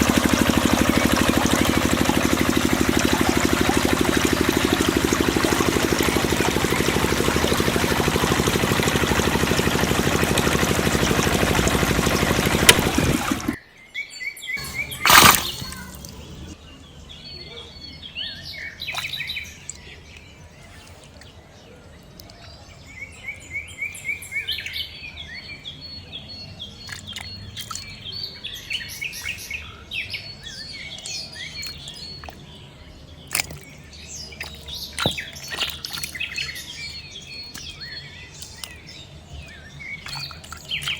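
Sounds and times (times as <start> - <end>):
small engine droning: 0.0 - 13.6, 14.6 - 16.6
birds chirping: 0.0 - 40.9.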